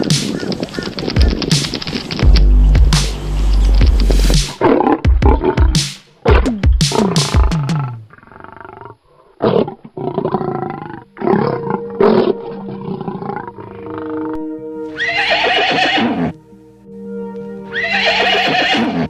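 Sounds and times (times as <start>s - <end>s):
background music: 0.0s - 8.1s, 10.9s - 19.0s
animal calls with bending pitch: 0.0s - 9.0s, 10.6s - 16.4s, 17.7s - 19.0s
horse whinnying: 10.8s - 16.4s, 17.7s - 19.0s.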